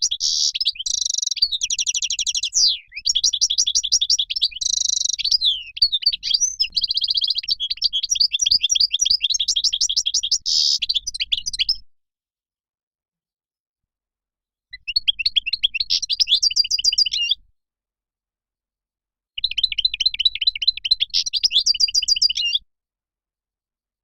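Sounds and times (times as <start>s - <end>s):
goldfinch twittering song: 0.0s - 11.8s, 14.8s - 17.4s, 19.4s - 22.6s.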